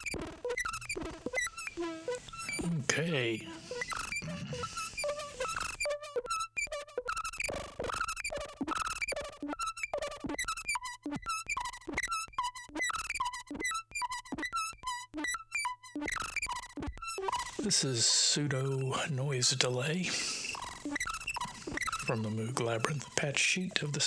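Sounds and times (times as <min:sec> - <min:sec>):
synthesizer blipping notes: 0:00.0 - 0:24.0.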